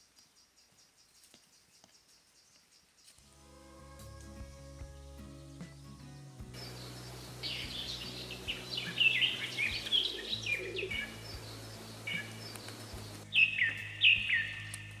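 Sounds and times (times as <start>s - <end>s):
outdoor background hiss: 0.0s - 15.0s
birds chirping and singing: 4.4s - 15.0s.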